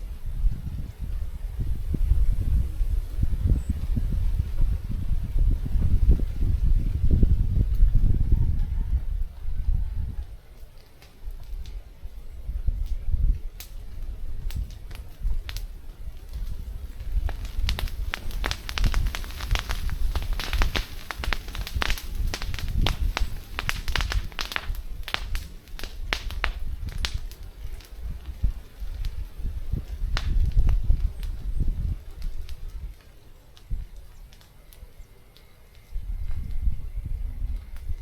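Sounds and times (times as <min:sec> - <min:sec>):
crackling and clicking: 0:10.5 - 0:12.0, 0:12.8 - 0:36.6.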